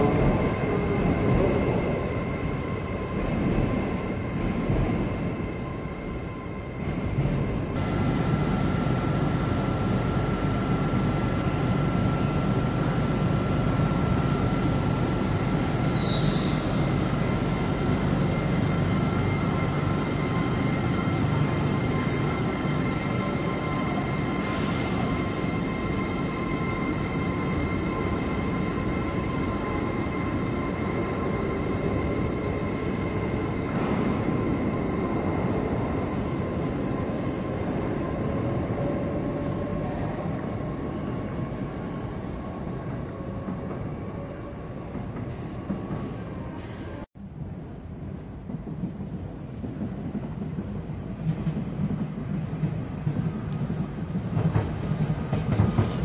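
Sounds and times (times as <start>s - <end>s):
train low rumble: 0.0s - 56.0s.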